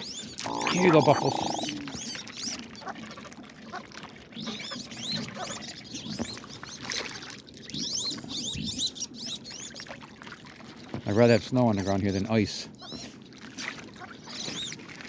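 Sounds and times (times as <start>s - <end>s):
ducks whistling calls: 0.0s - 2.6s.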